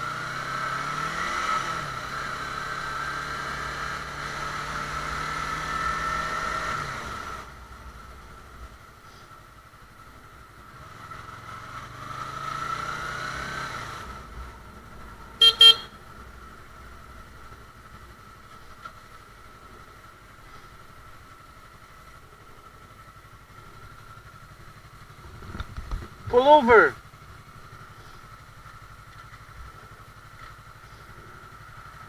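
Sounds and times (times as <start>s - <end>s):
motorcycle engine accelerating: 0.0s - 32.0s
horn honks: 15.4s - 16.1s.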